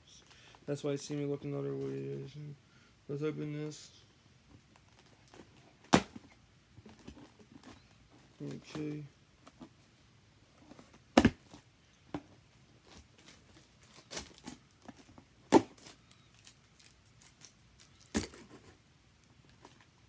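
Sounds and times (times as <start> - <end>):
light packaging rustling: 12.8 - 20.0.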